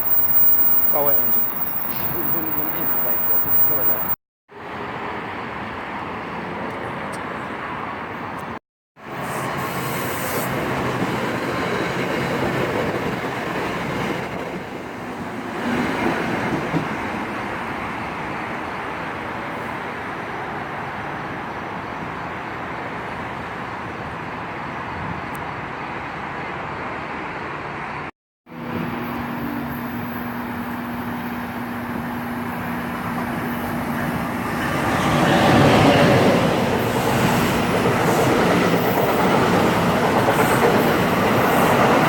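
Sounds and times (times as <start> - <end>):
train wheels on rails: 0.0 - 4.2, 28.7 - 42.0.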